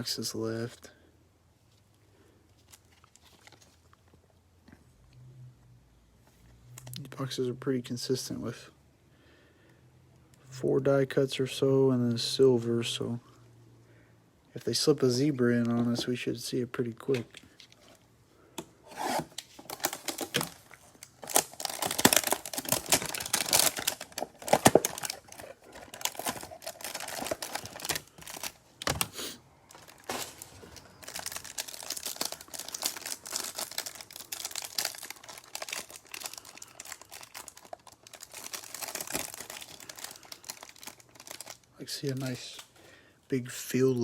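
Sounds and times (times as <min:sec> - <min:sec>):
packaging crinkling and tearing: 0:02.6 - 0:04.1, 0:18.9 - 0:29.1, 0:29.7 - 0:42.6
cards rustling: 0:18.9 - 0:42.4.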